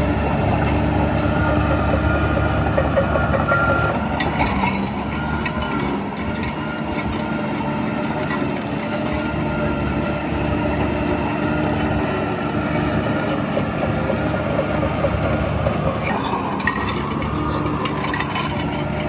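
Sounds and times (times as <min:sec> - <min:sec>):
diesel machinery running: 0:00.0 - 0:19.0
metallic clanks and squeaks: 0:00.3 - 0:08.6, 0:11.8 - 0:19.0.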